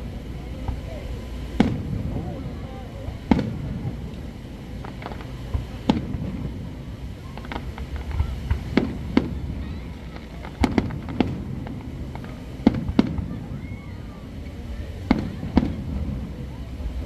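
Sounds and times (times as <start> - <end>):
fireworks shell bursts: 0.7 - 13.4.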